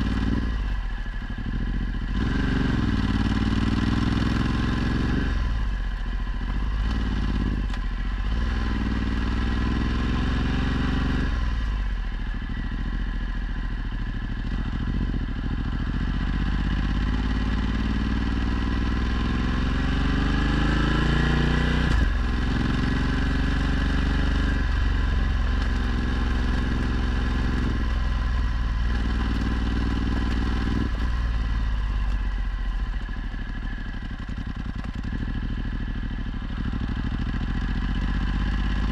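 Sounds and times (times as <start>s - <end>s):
motorcycle accelerating: 0.0s - 38.9s.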